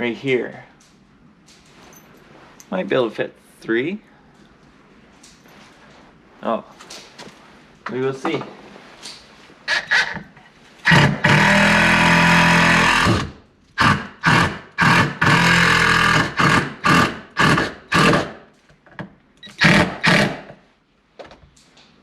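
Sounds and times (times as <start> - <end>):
power drill running: 10.9 - 18.3, 19.4 - 20.4.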